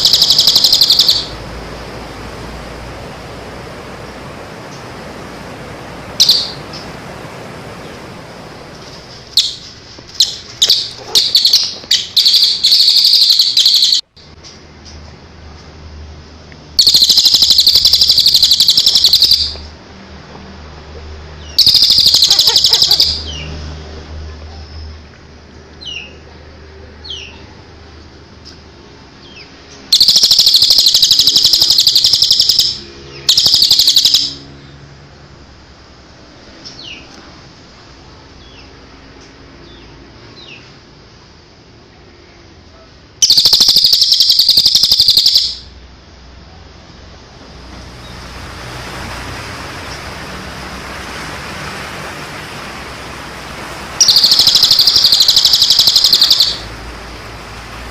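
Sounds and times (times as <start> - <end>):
songbird chattering trills: 0.0 - 1.4, 6.2 - 6.8, 9.4 - 14.0, 16.8 - 19.6, 21.6 - 23.5, 29.9 - 34.5, 43.2 - 45.7, 54.0 - 56.8
short bird chirps: 9.4 - 14.0, 43.2 - 45.6, 54.0 - 56.7.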